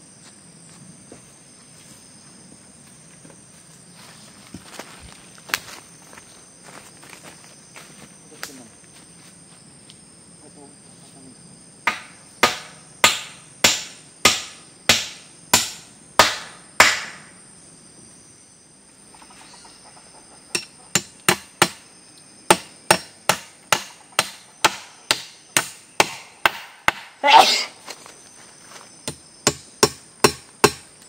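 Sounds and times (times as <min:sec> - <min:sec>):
insects trilling: 0:00.0 - 0:31.0
hand tool striking wood: 0:11.9 - 0:17.3, 0:20.5 - 0:21.8, 0:22.5 - 0:27.2, 0:29.0 - 0:30.9.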